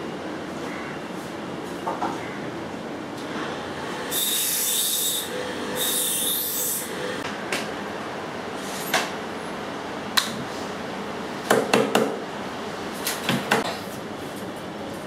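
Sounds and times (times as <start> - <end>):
steady machine noise: 2.6 - 8.6.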